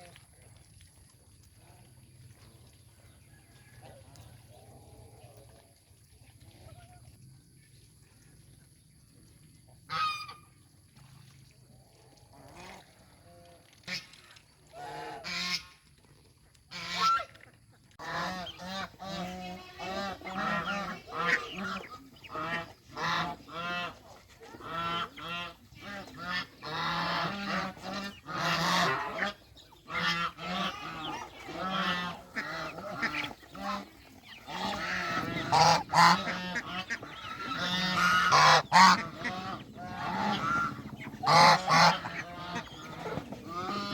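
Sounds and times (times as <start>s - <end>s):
geese honking: 18.0s - 43.9s.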